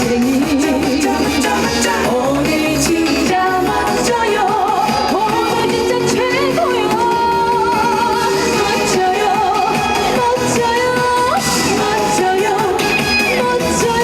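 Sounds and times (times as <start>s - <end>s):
amplified backing music: 0.0s - 14.0s
person singing with vibrato: 0.0s - 14.0s.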